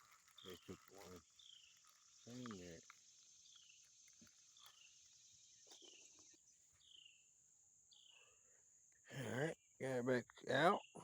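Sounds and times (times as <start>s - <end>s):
high insect buzz: 1.2s - 7.2s.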